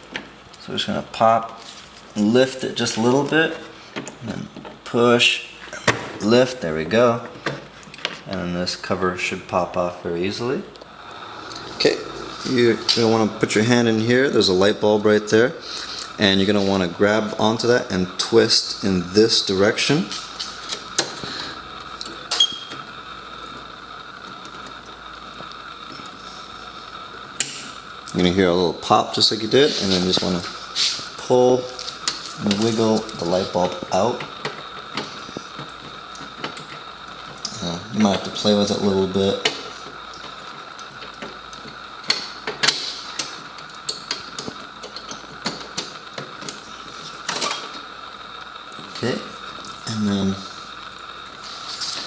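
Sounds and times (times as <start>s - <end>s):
faint high hum: 0.0s - 20.2s
faint hum: 0.0s - 42.4s.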